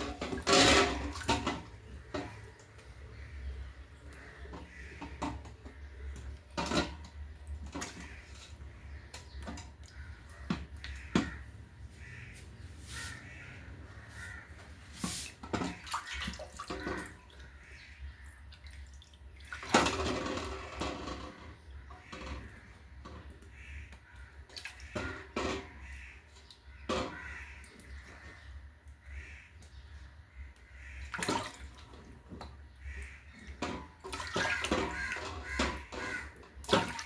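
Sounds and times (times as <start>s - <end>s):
water splashing in a basin: 0.0s - 37.0s.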